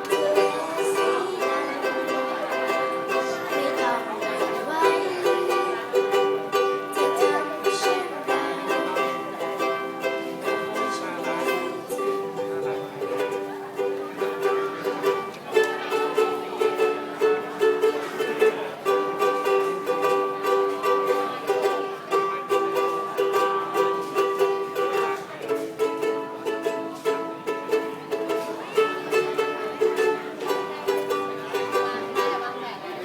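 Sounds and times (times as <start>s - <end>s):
ukulele strumming: 0.0s - 33.0s.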